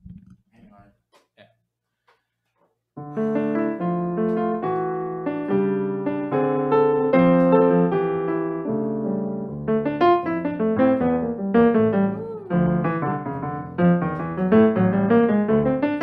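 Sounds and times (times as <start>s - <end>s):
piano playing chords: 3.0s - 16.0s.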